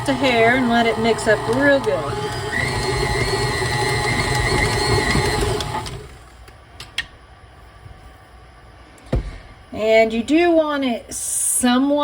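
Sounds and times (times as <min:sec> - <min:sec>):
electric mixer motor whining: 0:00.0 - 0:06.3.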